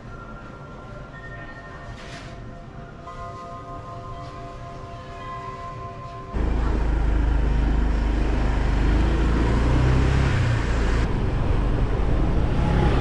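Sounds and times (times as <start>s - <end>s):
road and wind noise: 6.3s - 13.0s
motor scooter engine running: 6.4s - 11.0s.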